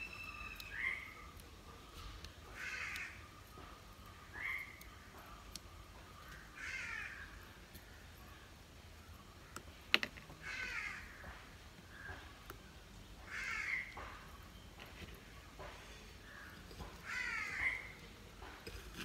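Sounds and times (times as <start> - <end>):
bird calling harshly: 0.0 - 1.3, 4.3 - 4.9, 16.4 - 18.0.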